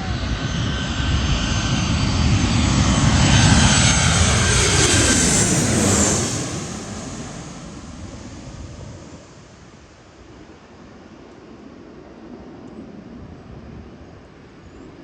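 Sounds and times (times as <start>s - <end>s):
jet airliner passing overhead: 0.0s - 15.0s.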